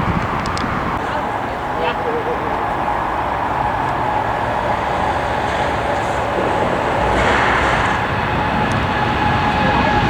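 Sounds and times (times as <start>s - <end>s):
jet engines running: 0.0s - 10.0s.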